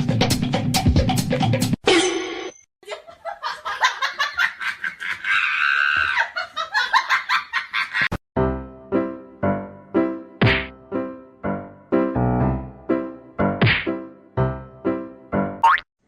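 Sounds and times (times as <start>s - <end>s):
person laughing: 2.8s - 8.2s
piano notes: 8.4s - 15.6s.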